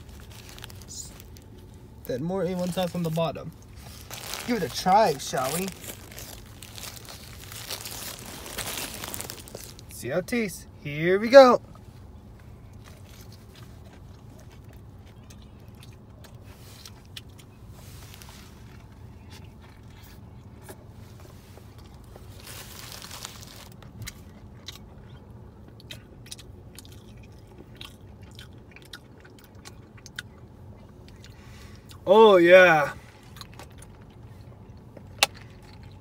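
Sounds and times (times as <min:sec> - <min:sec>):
paper wrapper rustling: 0:00.0 - 0:01.6, 0:02.6 - 0:09.9, 0:22.1 - 0:23.8
person chewing a burger: 0:00.0 - 0:10.0, 0:11.7 - 0:32.0, 0:33.0 - 0:36.0
steady low hum: 0:00.0 - 0:36.0
small crunching clicks: 0:03.8 - 0:09.9.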